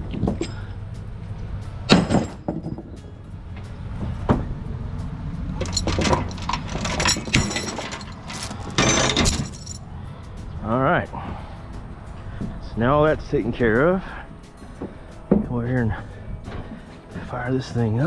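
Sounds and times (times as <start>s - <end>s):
rattling clatter: 0.0s - 4.7s, 5.5s - 9.8s
sharp metallic clanks: 1.8s - 4.6s, 5.6s - 9.9s.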